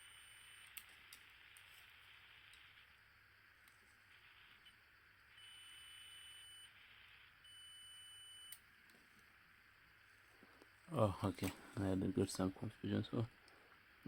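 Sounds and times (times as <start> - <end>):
multimeter high beep: 5.3 - 6.8, 7.4 - 8.6.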